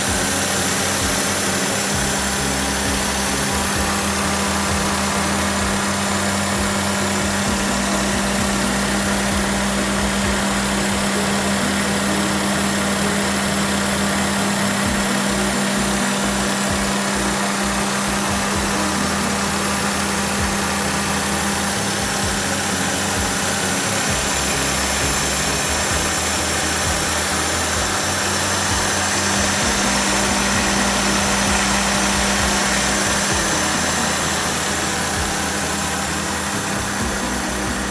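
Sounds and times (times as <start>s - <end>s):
car engine idling: 0.0s - 37.9s.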